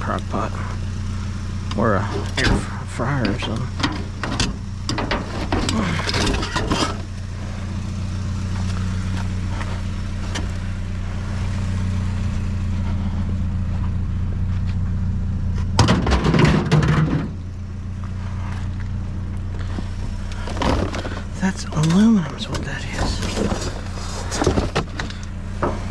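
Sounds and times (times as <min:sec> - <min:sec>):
vehicle engine humming: 0:00.0 - 0:25.9
clattering and knocking: 0:03.3 - 0:07.1, 0:15.8 - 0:17.4.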